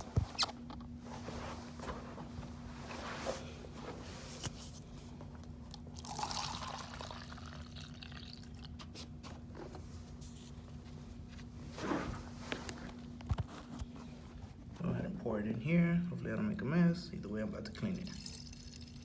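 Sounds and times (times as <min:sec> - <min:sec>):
liquid pouring into a cup: 0:06.0 - 0:08.8, 0:18.1 - 0:19.0.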